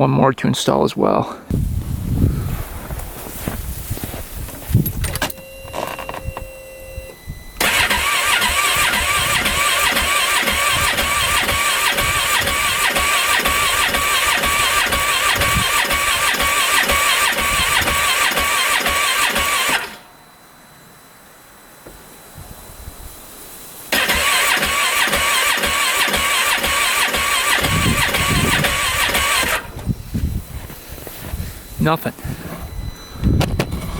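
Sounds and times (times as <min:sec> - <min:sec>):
clicks and short beeps: 0:04.8 - 0:07.9
engine cranking by starter: 0:07.6 - 0:20.1, 0:23.9 - 0:30.0.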